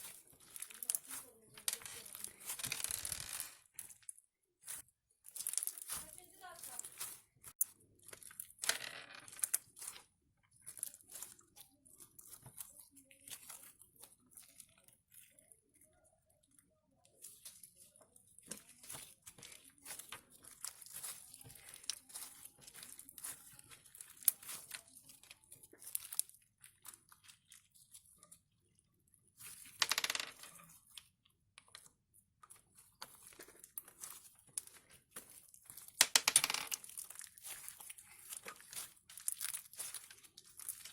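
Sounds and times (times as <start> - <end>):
slime crackling and popping: 0.0 - 8.7, 17.2 - 28.3, 31.9 - 40.9
slime squelch: 0.0 - 8.7, 9.3 - 29.8, 30.4 - 36.0, 36.8 - 40.9.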